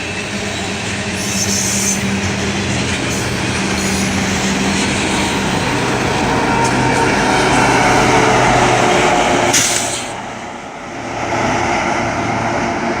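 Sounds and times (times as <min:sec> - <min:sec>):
train wheels rumbling on rail: 0:00.0 - 0:13.0
brief high hiss: 0:09.5 - 0:10.1.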